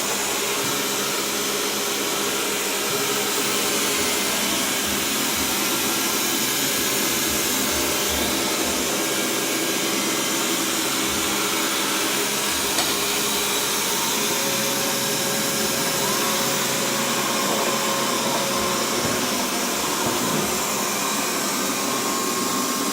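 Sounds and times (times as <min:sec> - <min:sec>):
robot vacuum cleaner running: 0:00.0 - 0:22.9.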